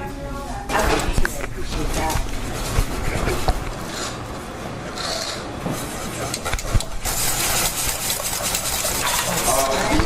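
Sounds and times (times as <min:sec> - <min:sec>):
dishes and utensils clinking: 0:07.4 - 0:10.0.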